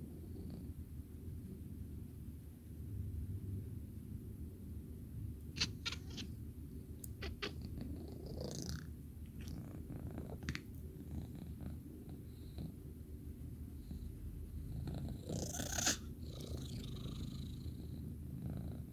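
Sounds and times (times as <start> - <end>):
cat chattering: 5.5 - 6.3, 7.1 - 9.7.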